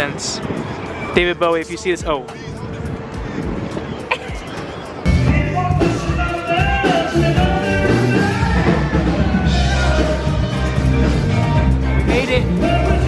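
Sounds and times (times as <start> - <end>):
rock music with singing: 2.0 - 13.0.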